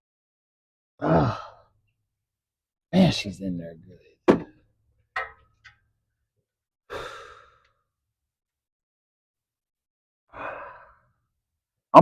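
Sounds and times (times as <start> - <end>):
man sighing with effort: 1.0 - 1.7, 6.9 - 7.6.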